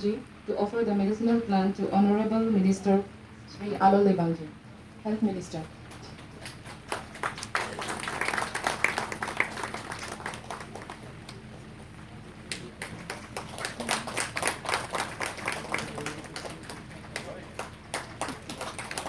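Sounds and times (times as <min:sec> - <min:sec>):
audience applauding: 0:05.9 - 0:11.8, 0:12.4 - 0:19.0.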